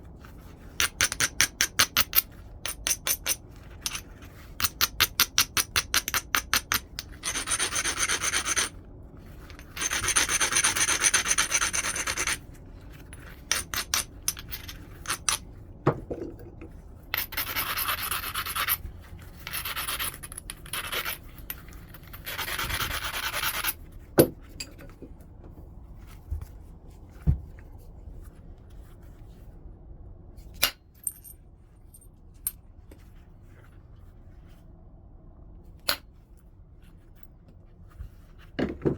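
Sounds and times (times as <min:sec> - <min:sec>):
stone rasping on flint: 0:17.4 - 0:18.8.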